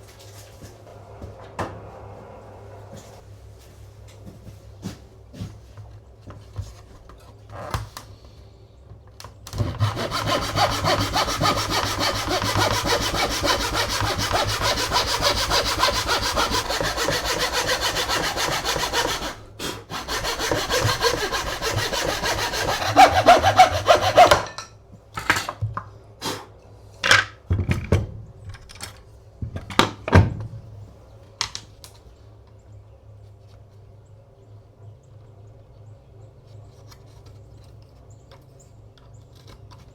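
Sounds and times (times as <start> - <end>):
hand saw cutting wood: 9.5 - 24.6.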